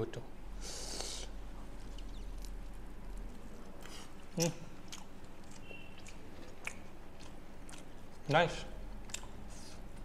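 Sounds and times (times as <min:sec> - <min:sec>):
wet chewing clicks: 0:01.8 - 0:08.4, 0:09.0 - 0:10.0.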